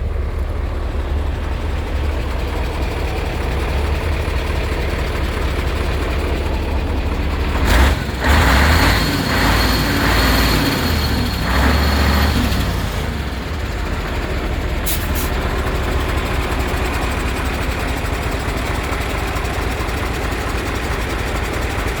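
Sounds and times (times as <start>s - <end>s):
diesel truck engine idling: 0.0s - 22.0s
air hiss: 14.9s - 15.3s.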